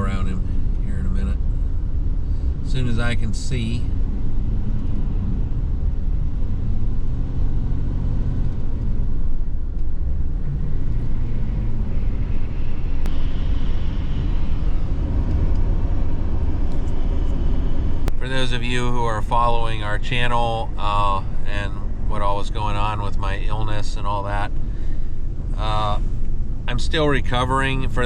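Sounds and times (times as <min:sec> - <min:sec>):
car engine and tyre noise: 0:00.0 - 0:28.0.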